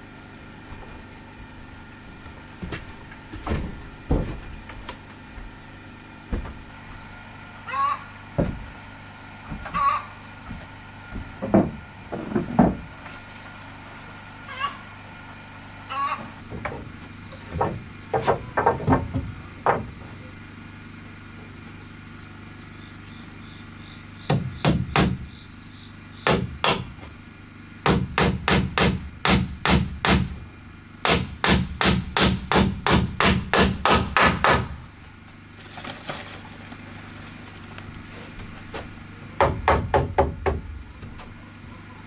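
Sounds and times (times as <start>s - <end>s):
hammer striking wood: 11.1s - 12.9s, 17.5s - 20.0s, 24.3s - 25.3s, 26.2s - 27.0s, 27.8s - 30.4s, 31.0s - 34.8s, 39.4s - 40.8s.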